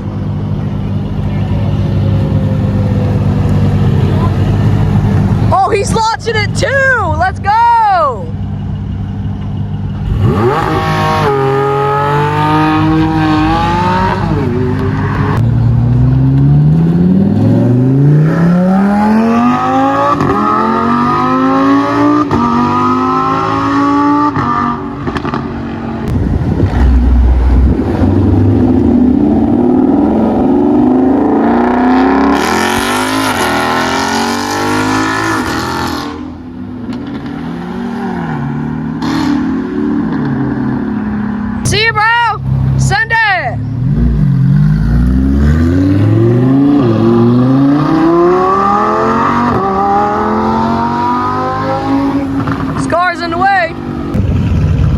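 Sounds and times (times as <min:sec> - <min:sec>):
cars accelerating hard: 0:10.0 - 0:41.6, 0:43.8 - 0:54.2.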